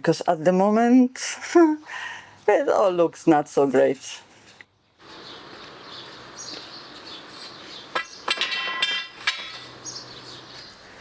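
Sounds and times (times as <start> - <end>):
hard objects knocking and clinking: 7.8 - 10.1.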